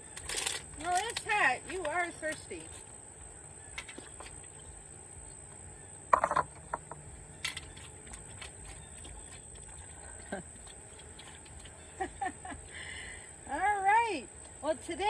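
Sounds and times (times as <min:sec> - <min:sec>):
puppy lapping water: 0:07.7 - 0:12.2.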